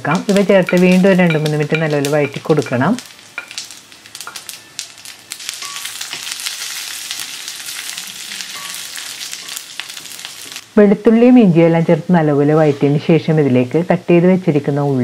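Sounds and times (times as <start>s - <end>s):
food sizzling in hot oil: 0.0s - 11.4s.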